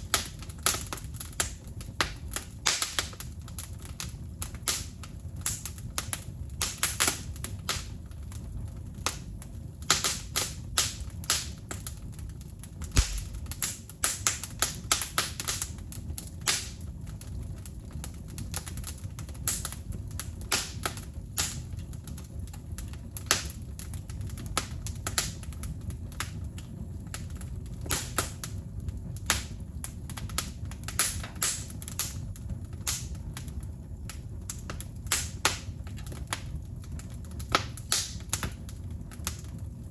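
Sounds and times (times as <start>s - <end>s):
burning wood popping: 0.0s - 39.9s
wood fire crackling: 0.0s - 39.9s.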